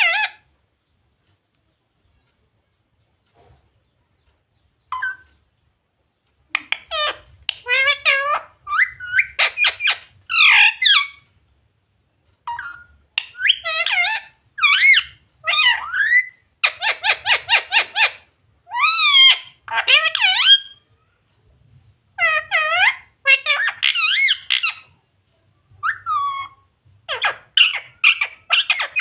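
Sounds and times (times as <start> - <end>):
parakeet squawking: 0.0 - 0.4, 6.5 - 11.2, 12.4 - 20.8, 22.2 - 24.9, 25.8 - 29.0.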